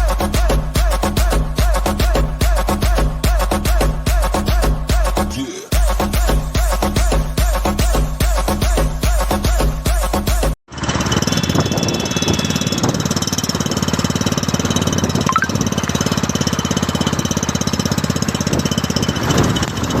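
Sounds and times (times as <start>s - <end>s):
motorcycle engine idling: 10.8s - 20.0s.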